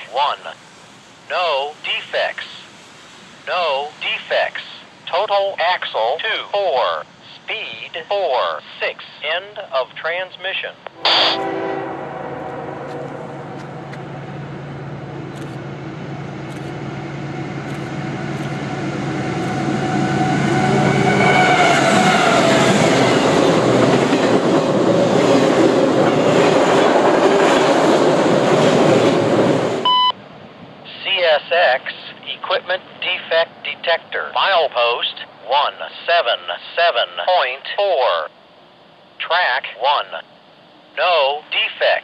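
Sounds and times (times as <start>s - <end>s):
diesel locomotive engine hum: 0.0s - 37.2s
railcars rumbling and clattering: 9.6s - 30.8s.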